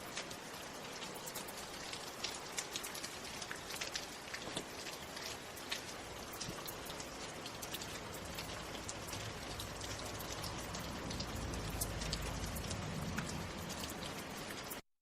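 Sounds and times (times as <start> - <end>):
rain falling: 0.0 - 14.8
raindrops ticking close by: 0.0 - 14.8.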